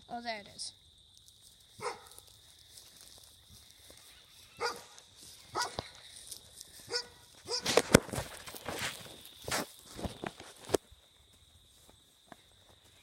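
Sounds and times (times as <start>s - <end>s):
dog barking: 1.8s - 2.2s, 4.6s - 5.9s, 6.9s - 7.7s.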